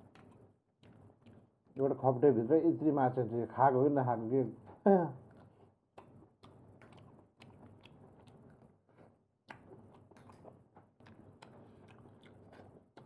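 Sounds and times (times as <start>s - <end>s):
small clicks and mouth noises: 0.0s - 2.0s, 5.2s - 13.0s
faint chewing of food: 0.0s - 3.4s, 4.6s - 13.0s.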